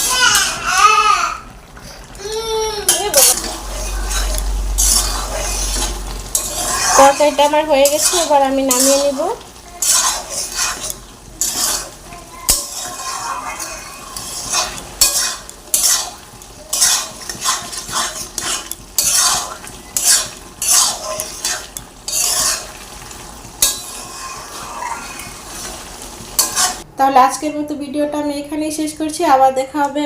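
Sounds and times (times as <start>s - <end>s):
soft sizzle: 0.0s - 30.0s
spatula scraping a pan: 2.9s - 26.9s.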